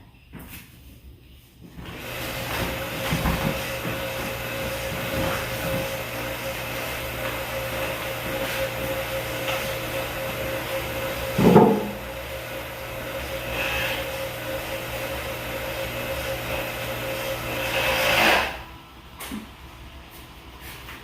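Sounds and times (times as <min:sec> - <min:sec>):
small electric motor humming: 0:13.0 - 0:15.2.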